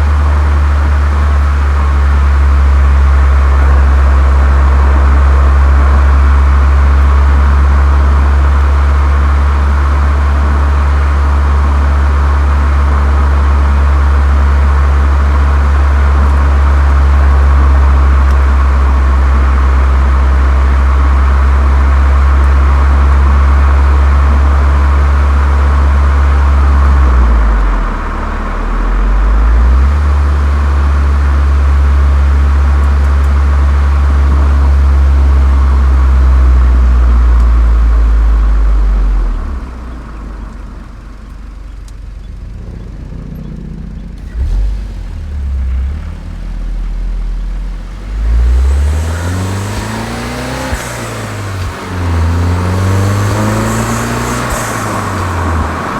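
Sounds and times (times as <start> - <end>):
car engine droning: 0.0 - 55.9.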